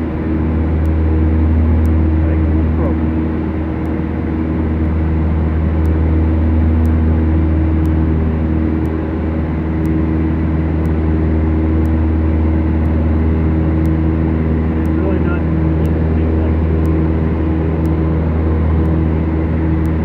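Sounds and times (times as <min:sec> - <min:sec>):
propeller engines droning: 0:00.0 - 0:20.0
faint ticking: 0:01.7 - 0:02.2, 0:03.8 - 0:05.1, 0:05.7 - 0:07.1, 0:07.7 - 0:09.1, 0:09.7 - 0:20.0.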